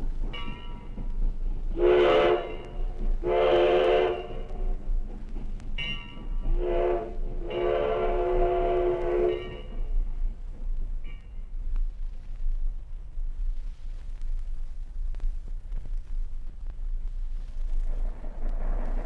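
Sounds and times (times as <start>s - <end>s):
steam locomotive chime whistle: 1.7s - 4.9s, 5.8s - 10.1s.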